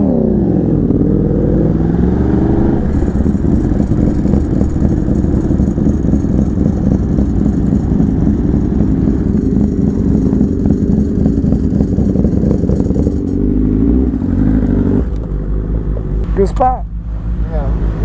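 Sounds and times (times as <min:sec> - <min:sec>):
sport bike engine running: 0:02.8 - 0:14.4.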